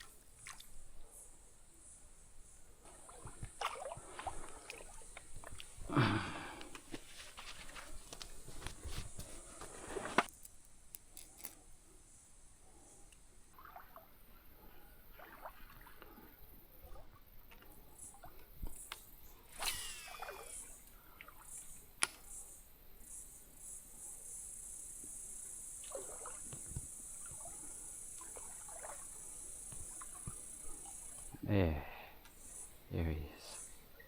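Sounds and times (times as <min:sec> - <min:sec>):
water splashing from wading: 0:00.0 - 0:00.9, 0:02.8 - 0:06.5, 0:13.6 - 0:14.2, 0:15.1 - 0:18.5, 0:19.5 - 0:21.6, 0:25.8 - 0:31.3
small knocks and rustles: 0:06.8 - 0:11.6.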